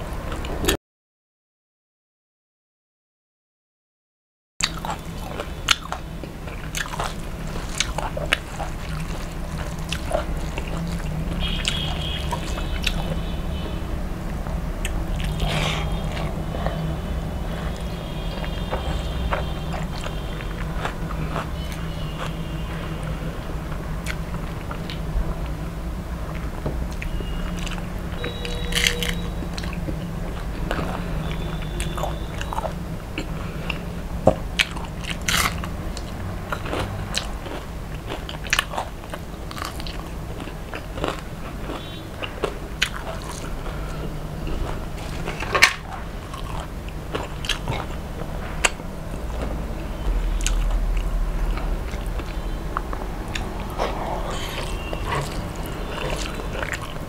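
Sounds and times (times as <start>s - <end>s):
crunching fried fish: 4.6s - 13.8s, 27.0s - 33.9s, 34.5s - 53.7s.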